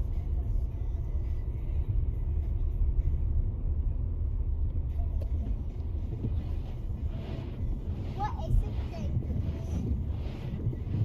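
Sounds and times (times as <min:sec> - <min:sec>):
car cabin low rumble: 0:00.0 - 0:11.0.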